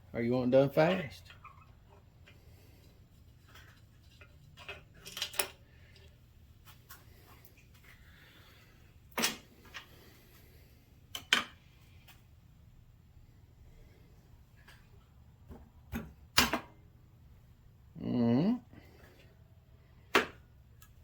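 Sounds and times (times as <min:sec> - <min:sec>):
tools and parts clicking: 0:03.4 - 0:06.1.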